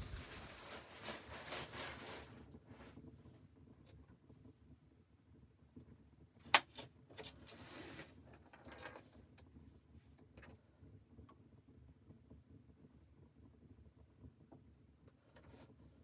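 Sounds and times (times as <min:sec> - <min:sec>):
rustle or scrape: 0:00.0 - 0:03.0, 0:07.2 - 0:09.0.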